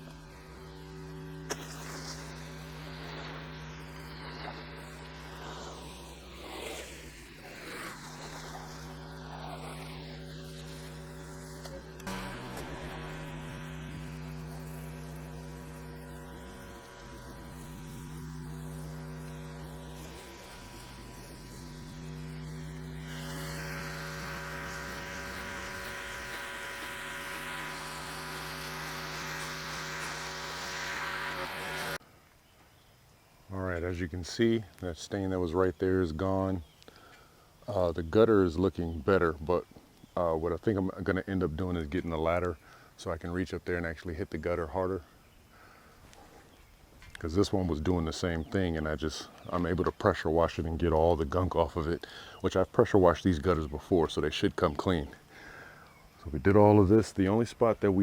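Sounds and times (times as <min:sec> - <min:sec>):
pressure washer motor hum: 0:00.0 - 0:32.0
water jet hissing against house: 0:00.0 - 0:32.0.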